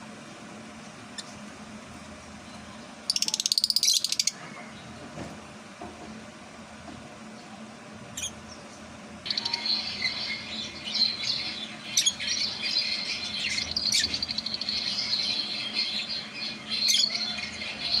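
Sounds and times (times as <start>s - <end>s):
lovebirds chattering: 2.4s - 4.9s, 7.3s - 18.0s
shrill bird calls: 3.1s - 4.8s, 9.3s - 18.0s.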